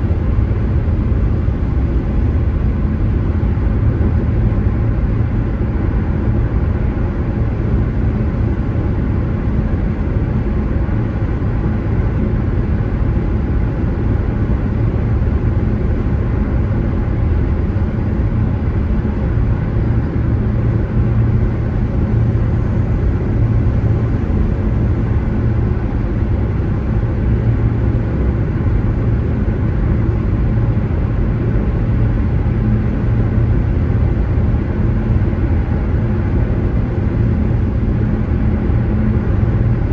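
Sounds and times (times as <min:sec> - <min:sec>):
car road and engine drone: 0:00.0 - 0:39.9.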